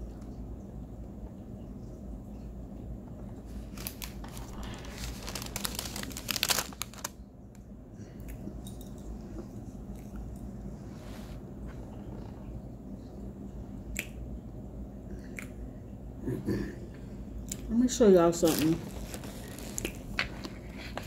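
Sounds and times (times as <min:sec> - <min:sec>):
crunchy chewing close up: 0:18.9 - 0:20.7.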